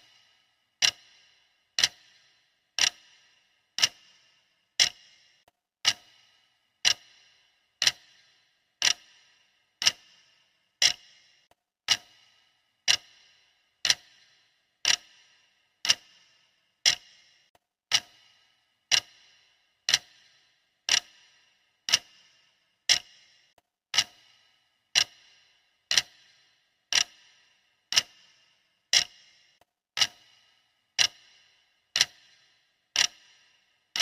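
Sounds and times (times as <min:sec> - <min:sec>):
clock ticking: 0:00.0 - 0:34.0.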